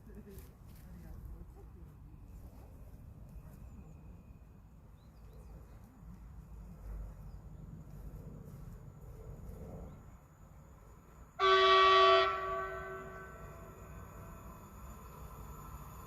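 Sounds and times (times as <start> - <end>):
train horn blast: 11.4 - 13.9.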